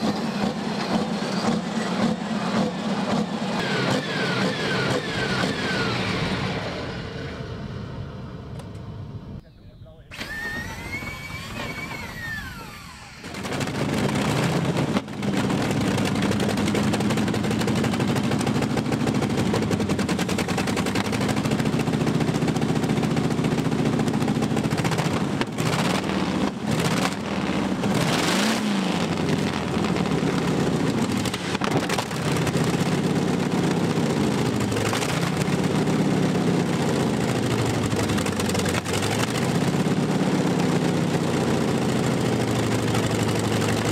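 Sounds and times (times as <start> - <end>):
tractor engine revving: 0.0 - 9.4, 10.0 - 43.9
short rising whine: 0.0 - 9.5, 10.1 - 14.6.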